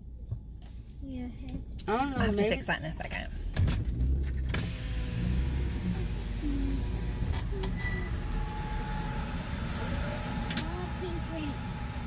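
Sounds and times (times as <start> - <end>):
car engine idling: 3.0 - 12.0.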